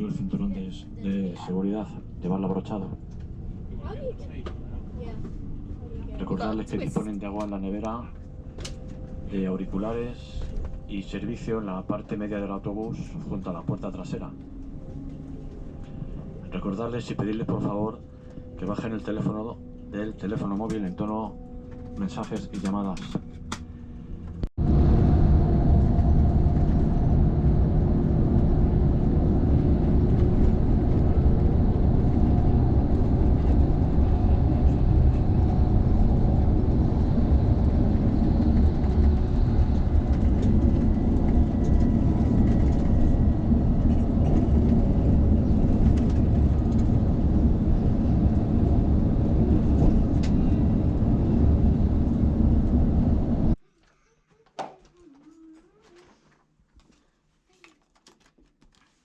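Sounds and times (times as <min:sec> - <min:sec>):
vehicle travelling at speed: 0:23.5 - 0:53.6.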